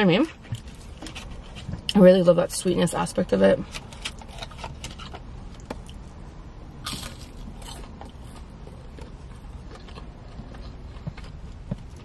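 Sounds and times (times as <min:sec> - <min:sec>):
crunchy chewing: 0:03.7 - 0:06.0, 0:06.8 - 0:12.0.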